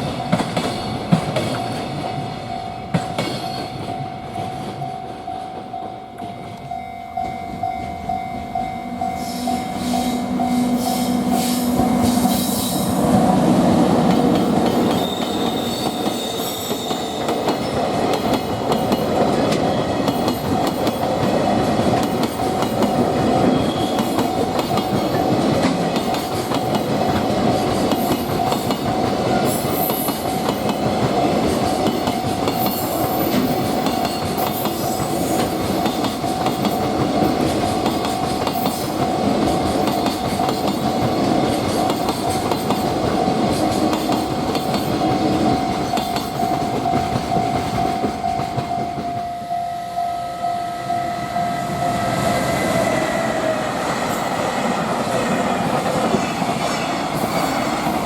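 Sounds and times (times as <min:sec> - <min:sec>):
freight train clattering: 0:00.0 - 0:49.3, 0:52.5 - 0:58.0
level crossing alarm ringing: 0:03.7 - 0:17.8, 0:44.6 - 0:53.1.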